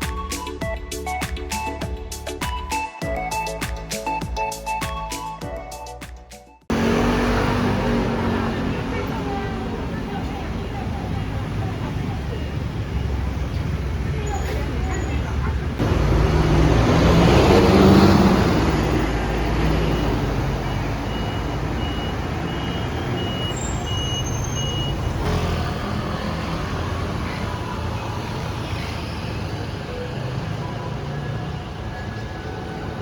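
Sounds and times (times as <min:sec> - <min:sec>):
vehicle passing loudly: 0:06.7 - 0:11.8, 0:12.6 - 0:32.0
traffic noise: 0:06.7 - 0:33.0
high electronic beep: 0:19.8 - 0:25.1.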